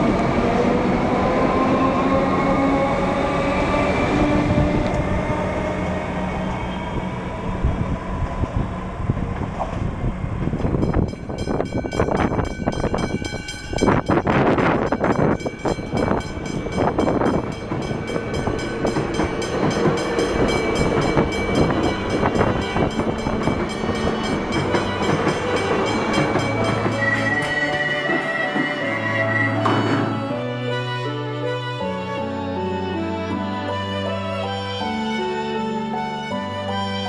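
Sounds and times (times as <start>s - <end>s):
electric train passing: 0.0s - 37.0s
level crossing warning bells: 10.8s - 29.8s.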